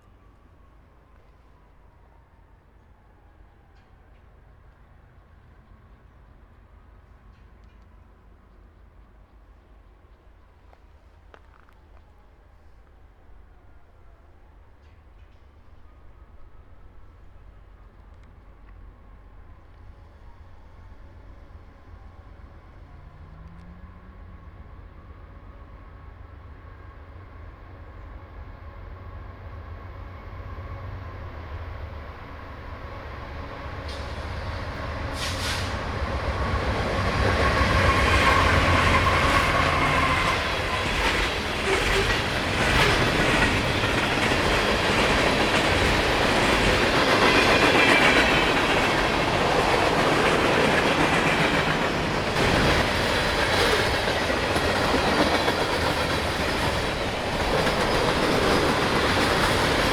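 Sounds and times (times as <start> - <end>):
train passing: 0.0 - 59.9
wheels clattering over rail joints: 36.8 - 59.9.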